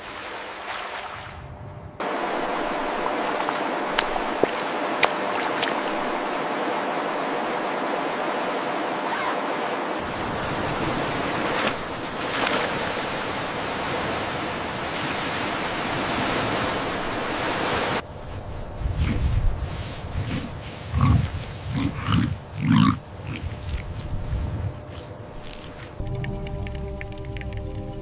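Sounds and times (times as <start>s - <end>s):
rushing water: 2.0s - 18.1s, 25.2s - 28.0s
low rumble: 25.4s - 28.0s.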